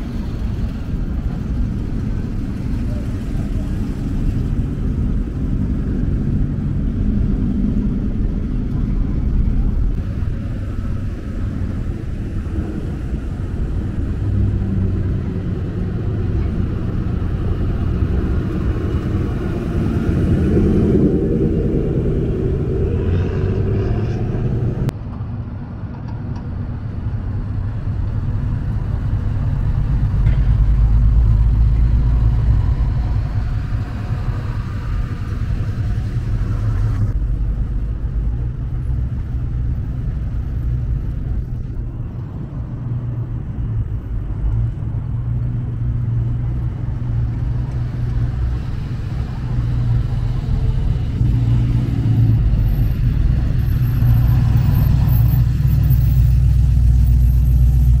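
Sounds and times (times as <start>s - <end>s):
car engines rumbling: 0.0s - 58.0s.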